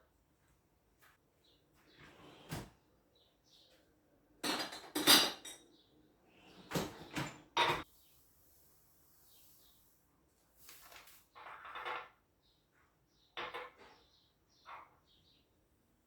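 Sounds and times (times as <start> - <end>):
dishes and utensils clinking: 4.4 - 5.7, 6.7 - 7.9.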